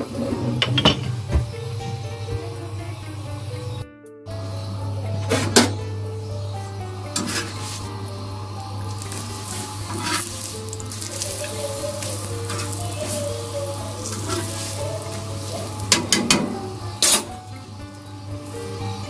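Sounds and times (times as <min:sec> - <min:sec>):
background music: 0:00.0 - 0:19.0
flatbread sizzling on a griddle: 0:07.1 - 0:19.0.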